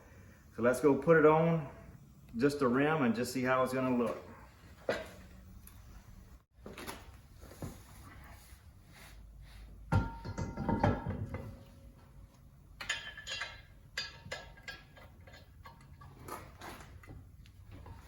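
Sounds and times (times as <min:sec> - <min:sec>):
metal wheel rim clanking: 0:09.9 - 0:12.1, 0:12.8 - 0:16.9.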